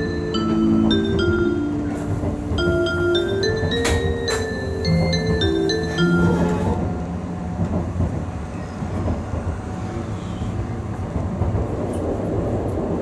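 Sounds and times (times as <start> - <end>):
onboard chime melody: 0.0 - 8.0
train running rumble: 0.0 - 13.0.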